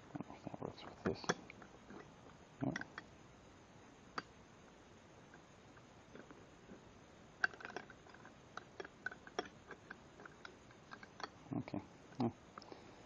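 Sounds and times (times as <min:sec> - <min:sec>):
wrenches clicking and clinking: 0:07.4 - 0:11.4.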